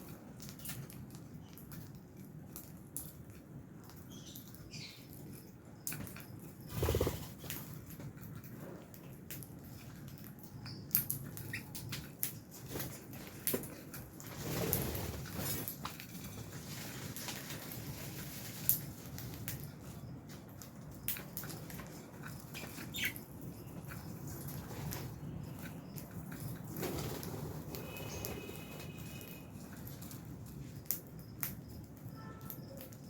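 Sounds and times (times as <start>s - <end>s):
birds flapping wings: 6.7s - 7.6s, 12.6s - 19.4s, 26.6s - 29.4s
birds chirping: 19.8s - 29.5s.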